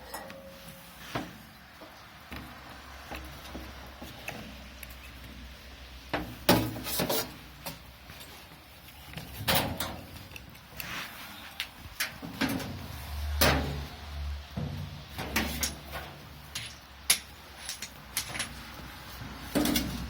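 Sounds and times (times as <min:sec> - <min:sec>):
grill parts knocking and clattering: 0:09.1 - 0:10.4, 0:12.0 - 0:13.9, 0:14.5 - 0:20.0.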